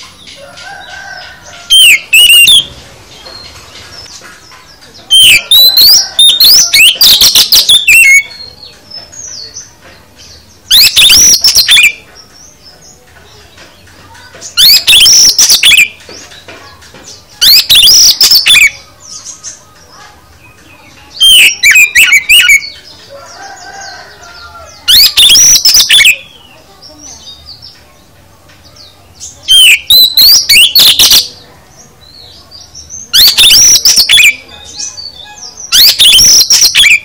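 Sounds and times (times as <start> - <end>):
bird singing high sliding notes: 1.4 - 4.2, 5.1 - 8.6, 10.4 - 12.1, 14.5 - 16.0, 17.1 - 19.6, 20.7 - 22.9, 23.6 - 26.6, 29.2 - 31.4, 32.8 - 37.0.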